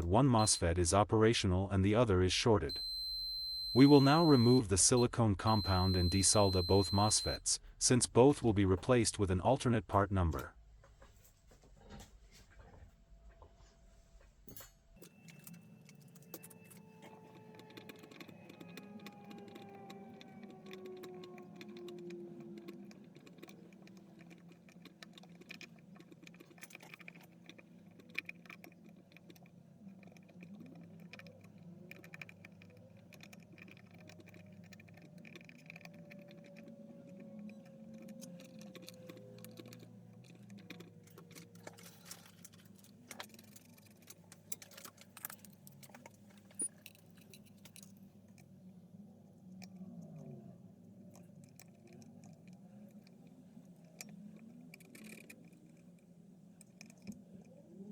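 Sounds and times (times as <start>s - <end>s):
low steady hum: 0.0s - 27.6s
hand tools clicking and scraping: 14.5s - 48.0s, 51.2s - 57.5s.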